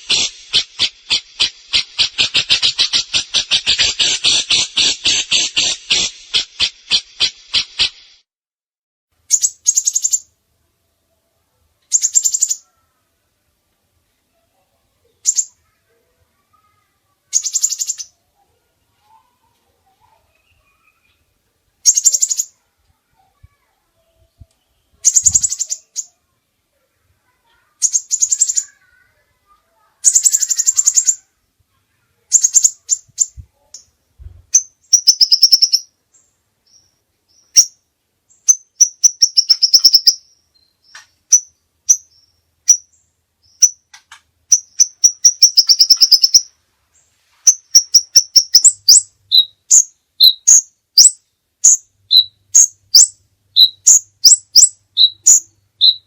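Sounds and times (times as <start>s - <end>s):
songbird trilling: 0.0s - 7.7s, 9.3s - 10.3s, 11.9s - 12.7s, 17.3s - 18.2s, 21.8s - 22.6s, 25.0s - 26.2s, 27.8s - 28.9s, 30.0s - 31.3s, 32.3s - 33.9s, 34.5s - 35.9s, 36.7s - 43.8s, 44.5s - 46.5s, 47.5s - 56.0s
bird chirping high and low notes: 21.8s - 22.6s, 24.7s - 26.2s, 27.8s - 28.8s, 30.0s - 31.2s, 34.5s - 43.9s, 44.5s - 46.5s, 47.5s - 56.0s.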